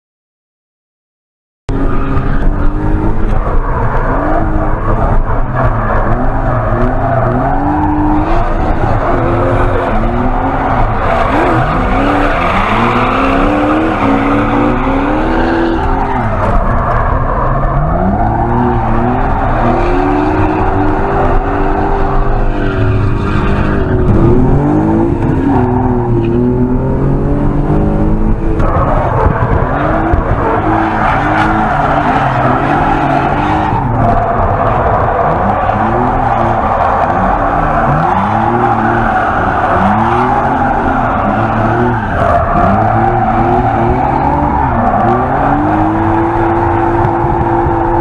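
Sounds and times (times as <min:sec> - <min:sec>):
tyres squealing and skidding: 0:01.7 - 0:27.4, 0:28.4 - 0:48.0
car engine revving: 0:01.7 - 0:48.0.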